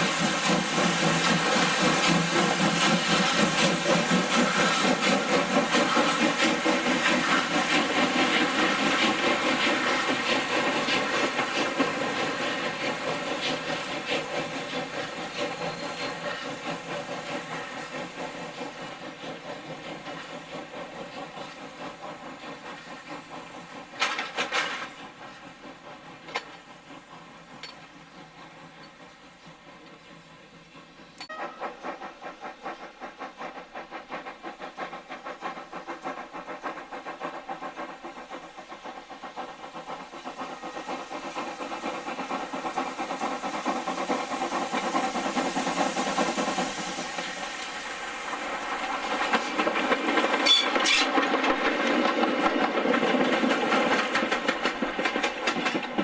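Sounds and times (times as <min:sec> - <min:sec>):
loud burst of steam: 0:00.0 - 0:27.6, 0:31.3 - 0:55.9
steam hissing: 0:00.0 - 0:56.0.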